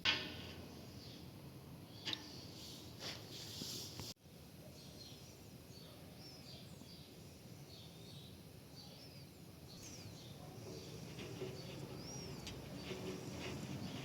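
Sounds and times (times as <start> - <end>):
low steady background noise: 0.0 - 14.0
faint bird chirps: 4.6 - 14.0.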